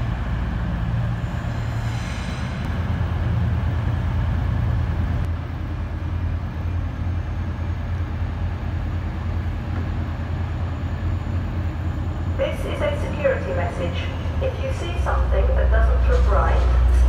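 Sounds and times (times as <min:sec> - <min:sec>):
faint station ambience: 0:00.0 - 0:17.0
train rumbling: 0:00.0 - 0:17.0.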